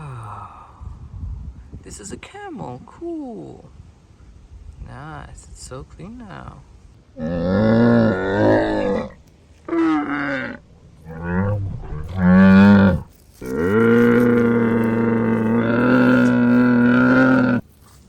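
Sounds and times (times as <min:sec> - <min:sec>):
camel moaning calls: 0:07.2 - 0:17.7.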